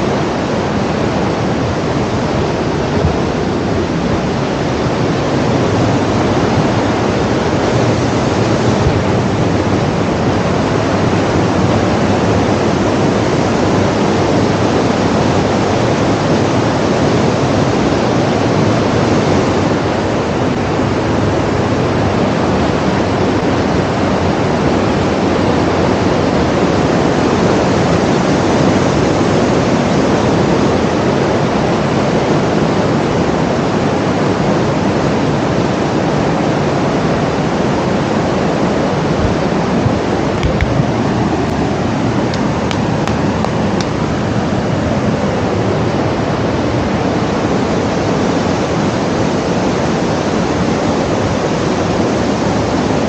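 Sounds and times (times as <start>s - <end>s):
steady loud rushing noise: 0.0s - 53.0s.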